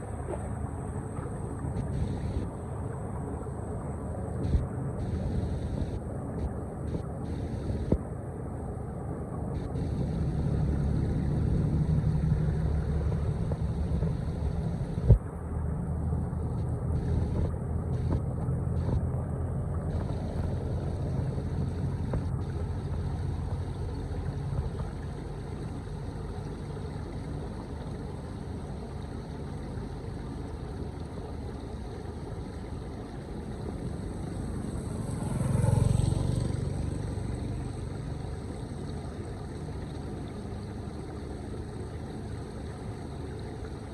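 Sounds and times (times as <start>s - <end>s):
floodwater rushing into storm drain: 9.4s - 43.9s.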